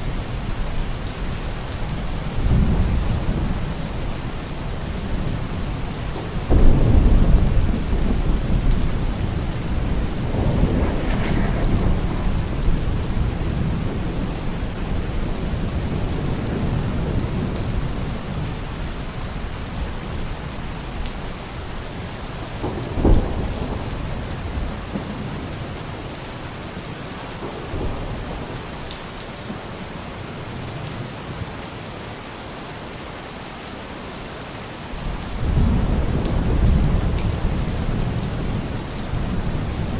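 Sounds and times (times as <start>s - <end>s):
heavy rain: 0.0s - 39.9s
thunder rumbling: 2.2s - 21.3s, 22.0s - 26.0s, 35.0s - 39.9s
sharp thunder crack: 6.5s - 14.4s.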